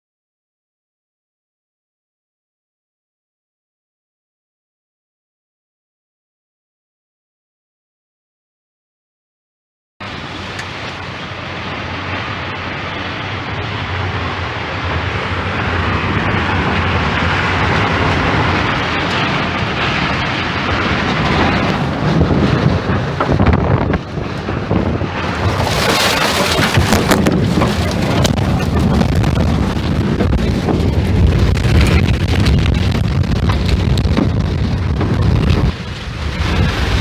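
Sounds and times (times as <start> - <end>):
strong wind buffeting microphone: 10.0 - 37.0.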